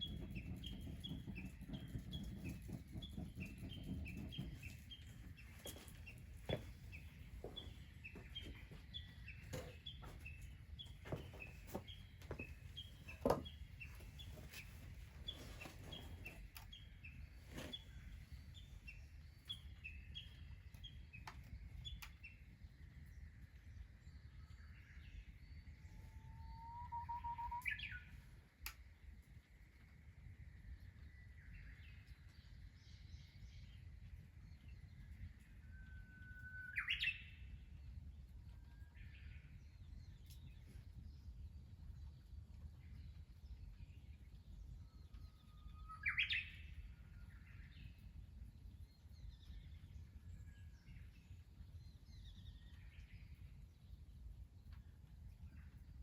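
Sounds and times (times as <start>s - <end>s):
birds chirping: 0.0s - 22.6s
bird whistling song: 25.9s - 28.3s, 35.5s - 37.5s, 44.8s - 47.8s.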